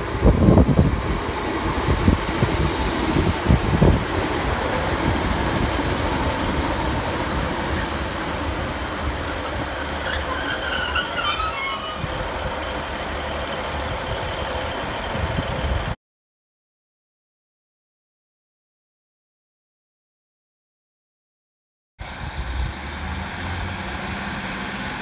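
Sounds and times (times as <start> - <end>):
diesel train rumbling past: 0.0 - 16.0
high-pitched metallic squeal: 7.4 - 12.8.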